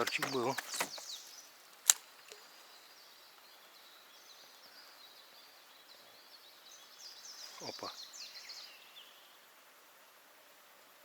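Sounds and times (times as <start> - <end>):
faint bird chirps: 2.2 - 9.6.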